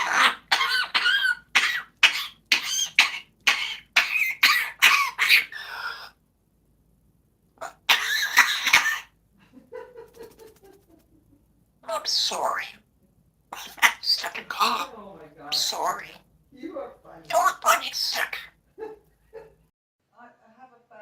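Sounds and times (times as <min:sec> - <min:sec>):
parrot mimicking coughing: 0:00.0 - 0:06.2, 0:07.6 - 0:09.2, 0:11.8 - 0:12.8, 0:13.5 - 0:14.9, 0:17.3 - 0:18.6.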